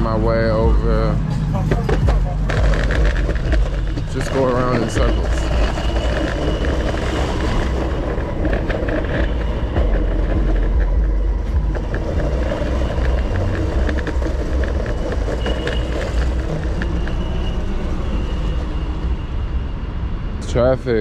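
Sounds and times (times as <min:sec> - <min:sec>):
skateboard wheels rolling on pavement: 0:00.0 - 0:19.7
car traffic: 0:00.0 - 0:21.0
skateboard clicks: 0:01.7 - 0:17.3.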